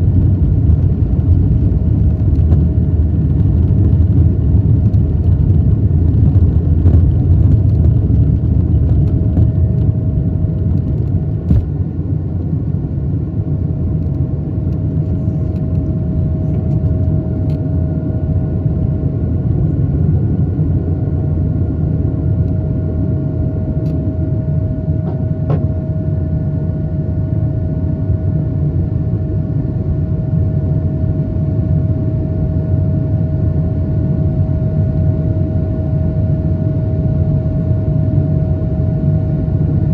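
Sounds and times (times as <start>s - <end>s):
jet engine whining tone: 0.0s - 39.9s
jet engines low rumble: 0.0s - 39.9s.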